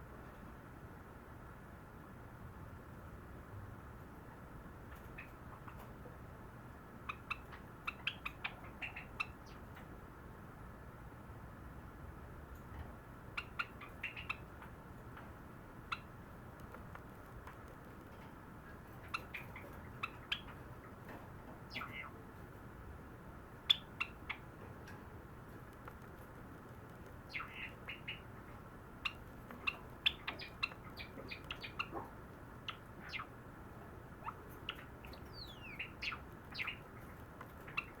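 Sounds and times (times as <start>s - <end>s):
small bird chirping: 4.9s - 6.0s, 7.0s - 9.8s, 13.3s - 22.5s, 23.6s - 38.0s.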